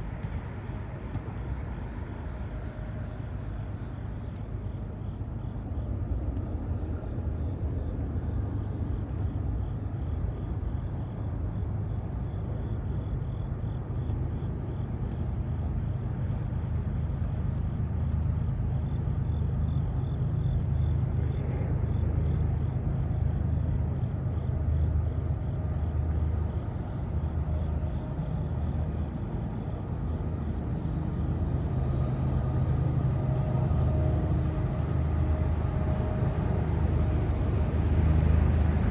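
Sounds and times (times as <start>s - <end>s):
large vehicle rumbling past: 33.2s - 38.9s.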